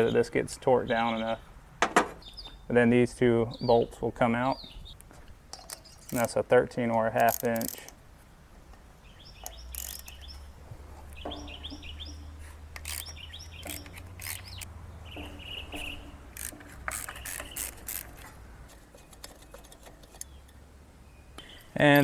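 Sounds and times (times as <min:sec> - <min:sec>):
bird chirps: 0:02.2 - 0:02.8, 0:03.4 - 0:05.0, 0:09.0 - 0:17.9, 0:18.9 - 0:22.0
metallic tool clicks and clinks: 0:07.2 - 0:08.0, 0:09.4 - 0:10.2.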